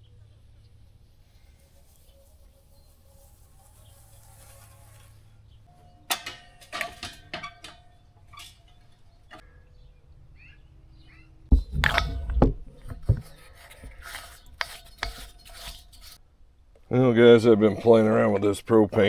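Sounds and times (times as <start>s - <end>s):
deep handling bumps: 11.5s - 16.2s.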